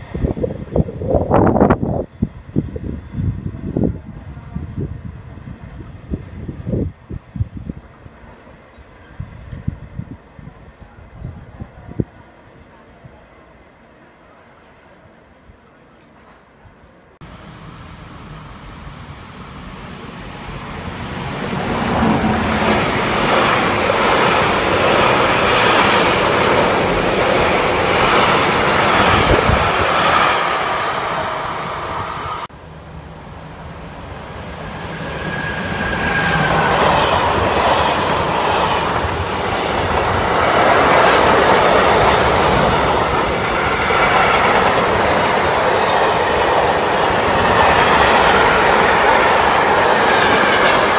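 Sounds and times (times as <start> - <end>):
train passing: 0.0 - 50.9
wheels clattering over rails: 39.8 - 50.9.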